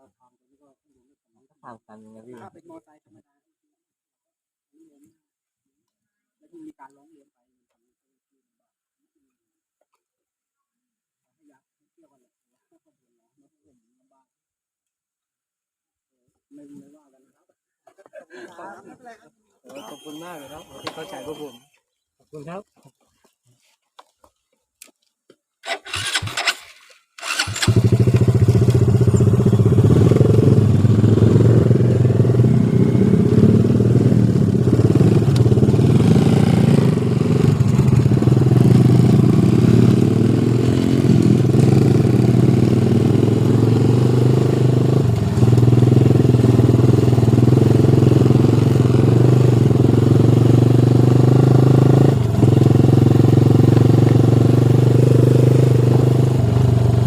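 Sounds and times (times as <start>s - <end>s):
motorcycle engine starting and running: 19.8s - 21.6s, 25.6s - 57.0s.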